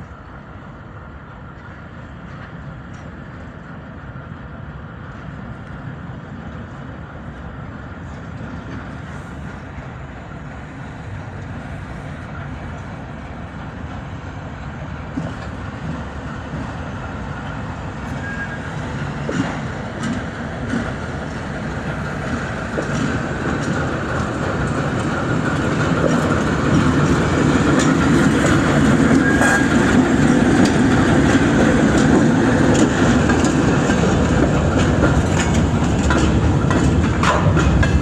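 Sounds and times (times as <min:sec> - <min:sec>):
diesel engine low rumble: 0:17.2 - 0:38.0.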